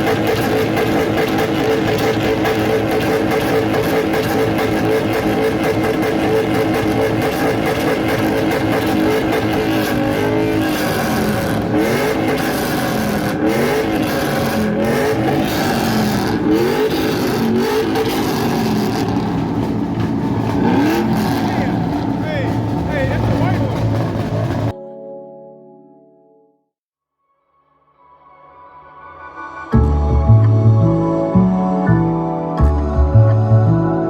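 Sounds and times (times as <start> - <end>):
car engine revving hard: 0.0 - 24.7.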